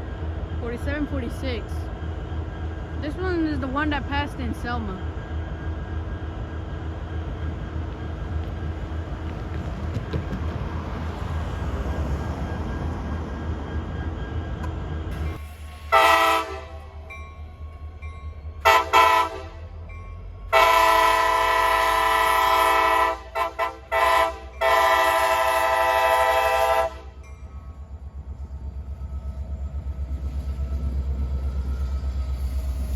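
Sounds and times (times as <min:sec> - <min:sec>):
train rumbling: 0:00.0 - 0:32.9
train air horn blasts: 0:15.8 - 0:17.0, 0:18.6 - 0:19.7, 0:20.5 - 0:27.2.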